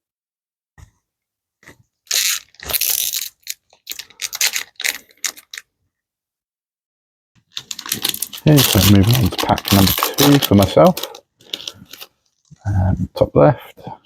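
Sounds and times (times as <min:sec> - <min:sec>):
foil wrapper crinkling and tearing: 0:02.1 - 0:05.7, 0:07.5 - 0:12.5.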